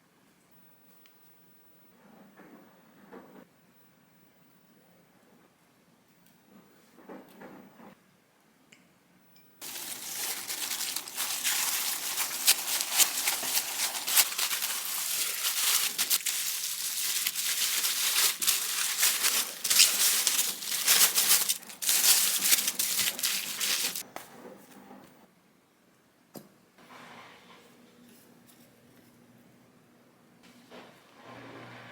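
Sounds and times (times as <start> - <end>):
wrapping material crinkling: 9.6 - 24.0.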